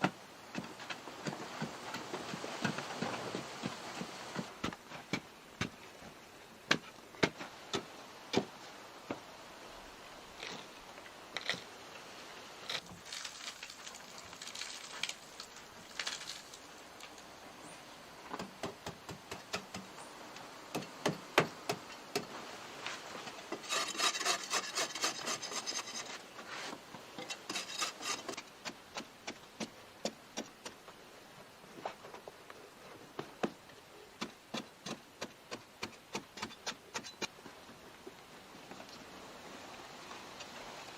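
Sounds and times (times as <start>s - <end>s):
rasping strokes on wood: 23.6s - 26.2s.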